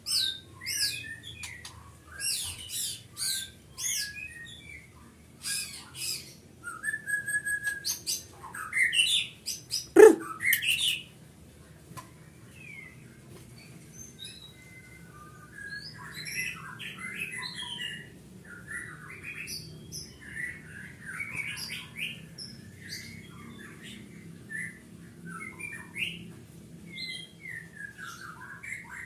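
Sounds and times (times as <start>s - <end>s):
songbird whistling and trilling: 5.5s - 11.0s, 14.0s - 22.2s.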